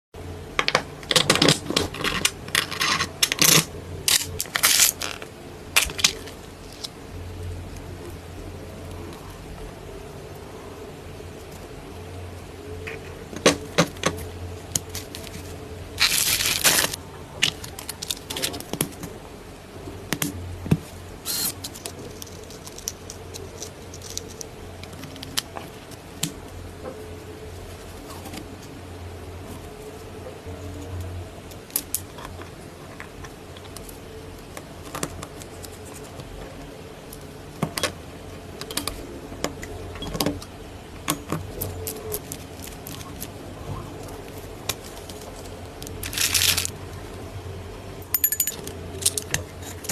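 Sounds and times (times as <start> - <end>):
steady low hum: 0.2 - 49.9
small parts clicking and clinking: 14.7 - 18.6, 21.3 - 25.6, 44.7 - 46.8, 48.0 - 49.9
rustling scrape: 44.8 - 46.8.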